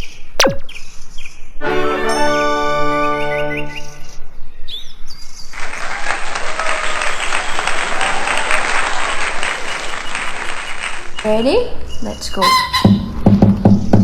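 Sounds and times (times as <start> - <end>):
short chirps: 0.4 - 0.8
crowd applauding: 5.6 - 10.8.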